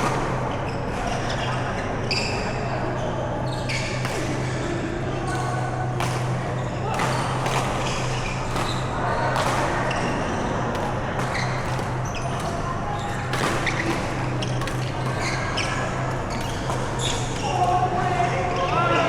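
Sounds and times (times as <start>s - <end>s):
racket hitting shuttlecock: 0.0s - 0.5s, 4.0s - 18.3s
shoes squeaking on court floor: 0.0s - 4.6s, 5.3s - 18.3s.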